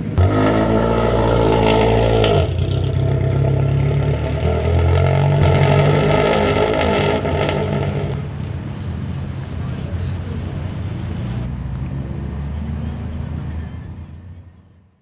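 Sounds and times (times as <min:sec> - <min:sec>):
loud rally car engine: 0:00.0 - 0:14.7.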